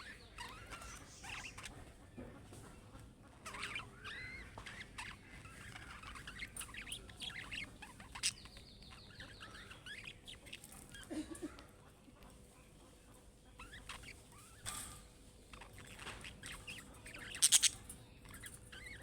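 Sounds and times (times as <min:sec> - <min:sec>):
budgerigars chattering: 0:00.0 - 0:11.1, 0:13.5 - 0:14.9, 0:15.5 - 0:19.0.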